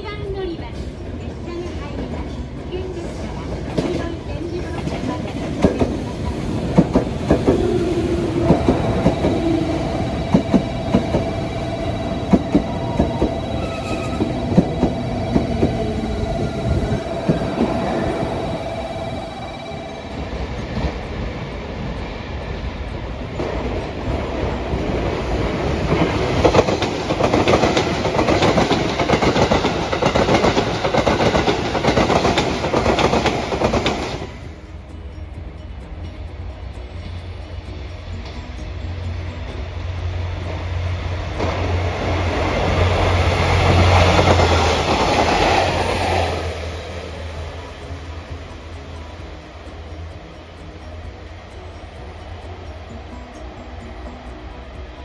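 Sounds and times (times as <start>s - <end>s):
rumble of passing train: 0.0s - 55.0s
steady high tone: 0.0s - 55.0s
train wheels clacking over rail joints: 0.2s - 19.2s, 20.1s - 34.4s.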